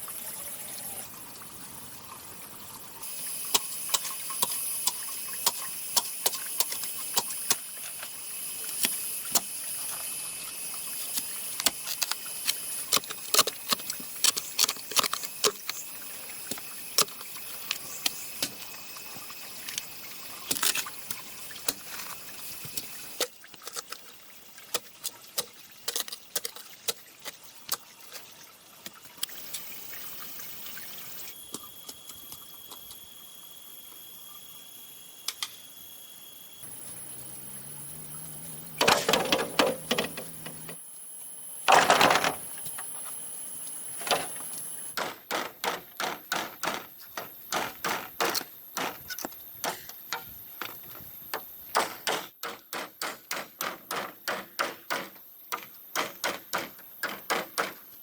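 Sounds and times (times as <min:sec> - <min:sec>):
high-pitched insect drone: 0:29.3 - 0:45.0.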